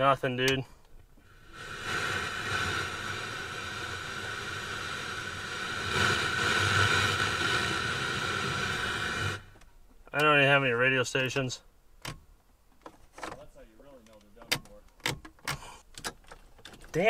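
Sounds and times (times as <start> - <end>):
radio static hiss: 1.3 - 9.6.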